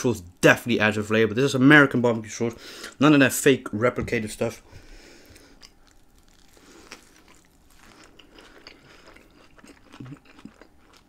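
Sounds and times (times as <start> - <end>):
person chewing food: 5.0 - 11.0.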